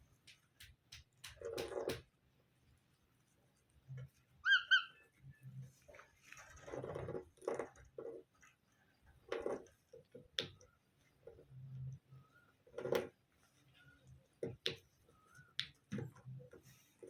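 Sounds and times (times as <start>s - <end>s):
parrot soft squeaky chirps: 4.4s - 5.1s.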